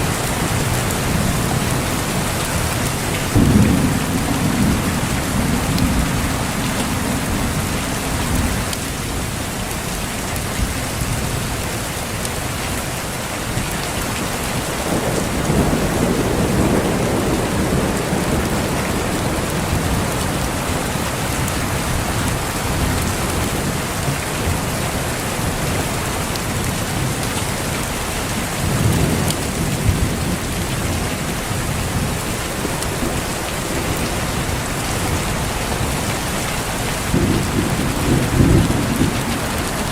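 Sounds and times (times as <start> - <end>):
heavy rain falling: 0.0 - 39.9
rolls of thunder: 3.4 - 8.6, 37.1 - 39.8.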